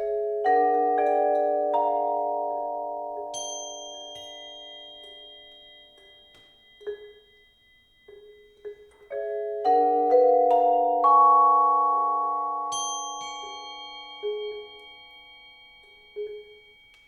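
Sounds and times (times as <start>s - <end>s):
marimba and vibraphone chords: 0.0s - 5.2s, 8.1s - 15.4s.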